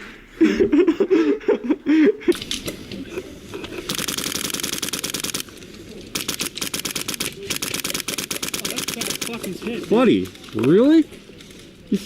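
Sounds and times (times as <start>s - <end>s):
airsoft guns firing bursts: 3.9s - 5.5s, 6.1s - 10.0s.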